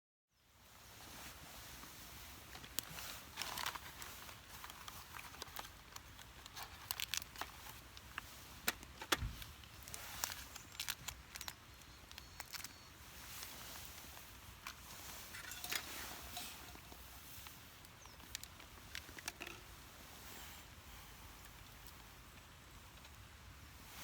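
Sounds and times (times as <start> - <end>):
light clicks taps and crackles: 14.6 - 19.6, 21.4 - 23.2.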